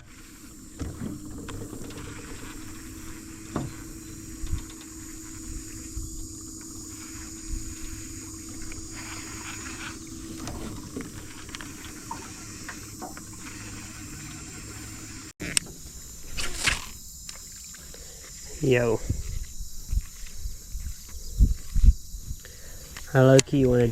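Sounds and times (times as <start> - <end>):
water washing around boat: 0.0 - 15.3
faint low hum: 0.0 - 23.9.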